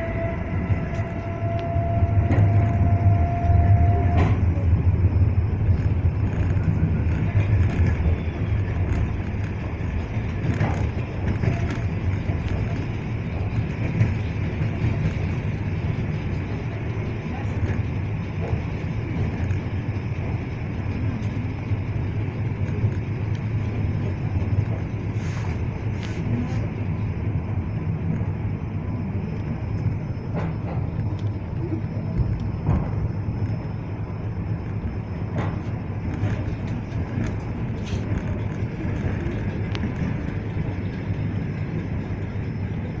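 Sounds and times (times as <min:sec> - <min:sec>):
rumble of wheels on rails: 0:00.0 - 0:43.0.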